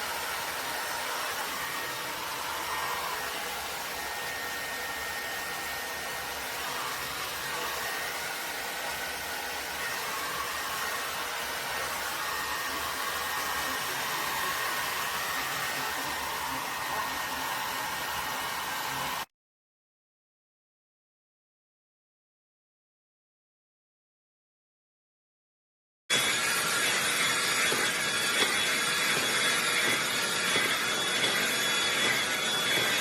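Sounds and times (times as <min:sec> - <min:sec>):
hair dryer blowing: 0:00.0 - 0:19.3, 0:26.1 - 0:33.0.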